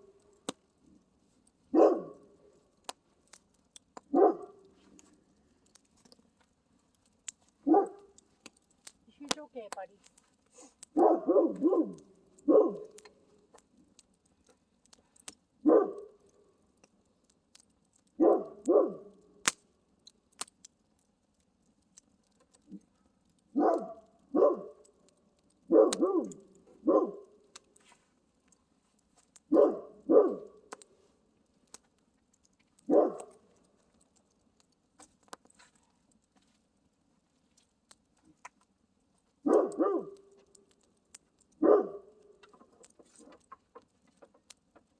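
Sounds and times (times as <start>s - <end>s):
faint sharp crackles: 0.0s - 44.9s
dog barking: 1.7s - 2.3s, 4.1s - 4.6s, 7.6s - 8.0s, 10.9s - 13.0s, 15.6s - 16.2s, 18.2s - 19.2s, 23.6s - 24.9s, 25.7s - 27.3s, 29.5s - 30.6s, 32.9s - 33.4s, 39.4s - 40.2s, 41.6s - 42.2s.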